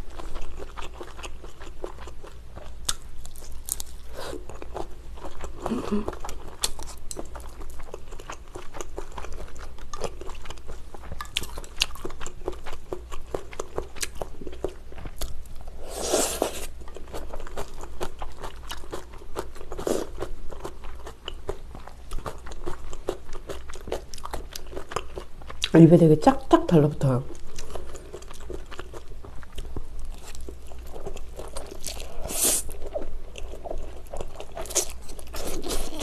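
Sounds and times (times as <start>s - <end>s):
chewing noodles: 0.0s - 25.7s, 27.3s - 36.0s.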